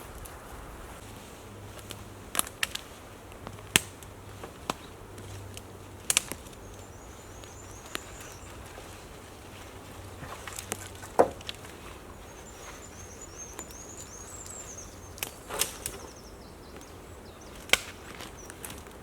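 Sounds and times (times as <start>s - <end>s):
faint high twittering: 6.4s - 10.5s, 11.8s - 18.9s
sharp knocks and clicks: 10.6s - 11.6s.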